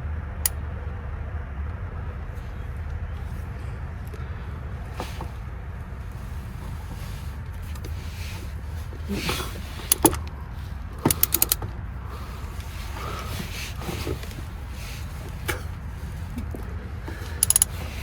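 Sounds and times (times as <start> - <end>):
wrench clicking: 9.8 - 10.2, 11.0 - 11.6, 17.3 - 18.0.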